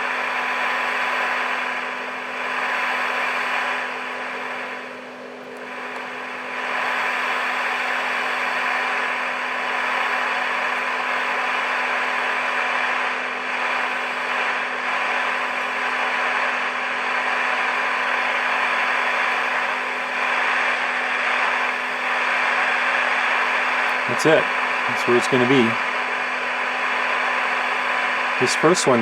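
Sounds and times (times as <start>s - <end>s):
radio static hiss: 0.0s - 29.0s.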